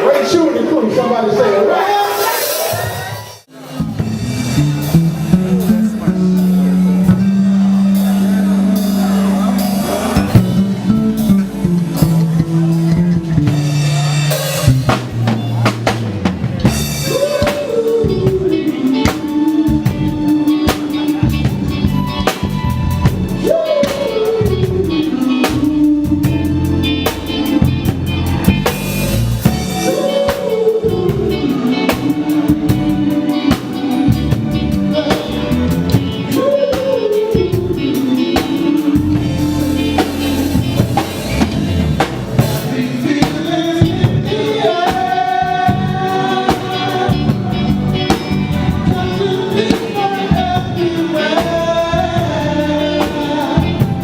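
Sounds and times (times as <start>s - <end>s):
live band playing: 0.0s - 54.0s
lead melody line: 3.5s - 54.0s.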